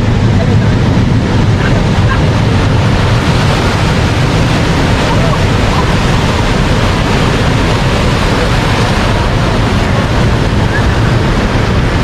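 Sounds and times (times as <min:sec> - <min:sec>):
ocean surf washing ashore: 0:00.0 - 0:12.0
wind rumbling on microphone: 0:00.0 - 0:12.0.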